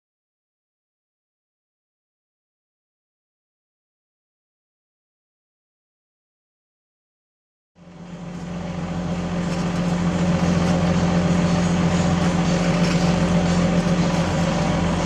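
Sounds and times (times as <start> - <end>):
heavy diesel engine running: 7.8 - 15.0.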